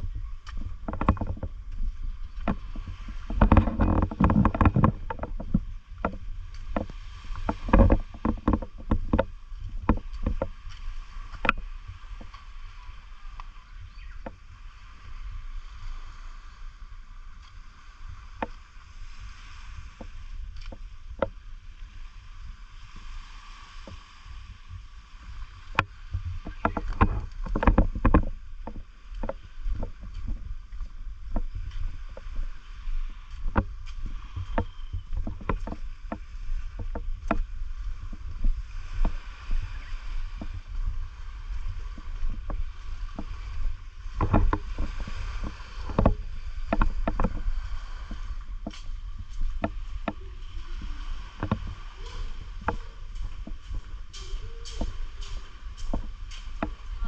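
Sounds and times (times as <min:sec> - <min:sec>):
seawater lapping and splashing: 0:00.0 - 0:57.0
wind rumble on microphone: 0:00.0 - 0:57.0
sharp clicks and splashes: 0:00.4 - 0:13.6, 0:25.2 - 0:39.2, 0:42.0 - 0:57.0.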